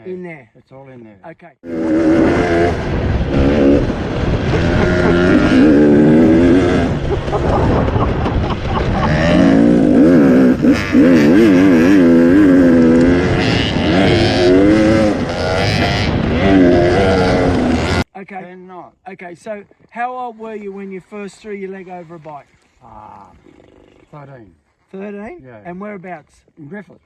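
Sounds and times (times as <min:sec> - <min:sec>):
dirt bike engine revving: 0:01.6 - 0:08.0, 0:08.7 - 0:18.0.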